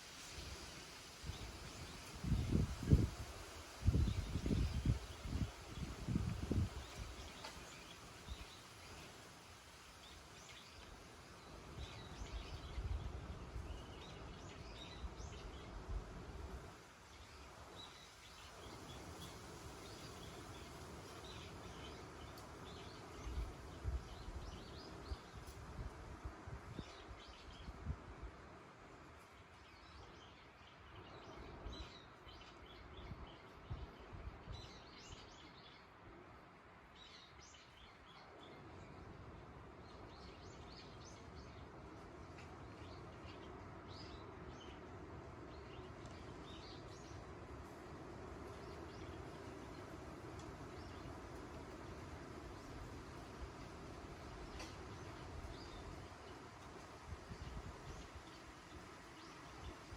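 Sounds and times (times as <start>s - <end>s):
faint wind: 0.0s - 59.9s
wind gusting over microphone: 1.2s - 7.3s
small birds chirping: 48.4s - 59.9s.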